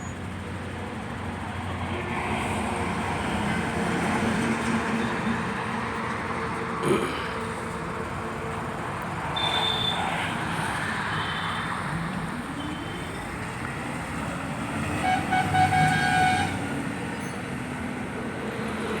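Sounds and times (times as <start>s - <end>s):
traffic noise: 0.0s - 19.0s
vehicle horn: 9.4s - 10.0s, 15.0s - 16.6s.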